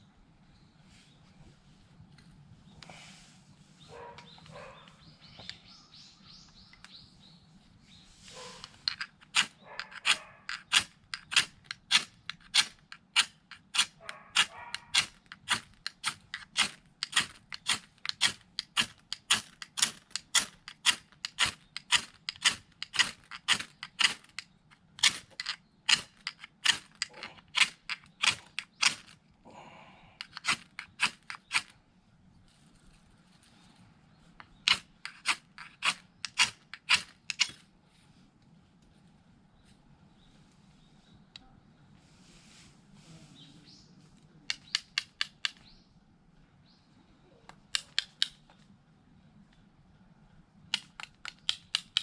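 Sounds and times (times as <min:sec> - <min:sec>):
knife shaving wooden stick: 0:08.3 - 0:29.2, 0:34.4 - 0:38.0.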